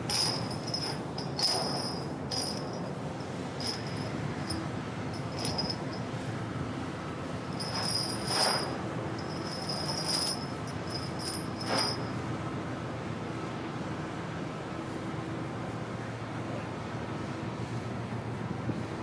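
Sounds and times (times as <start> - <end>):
metallic jingling: 0.0 - 6.1, 7.6 - 12.1
ship machinery drone: 0.0 - 19.0.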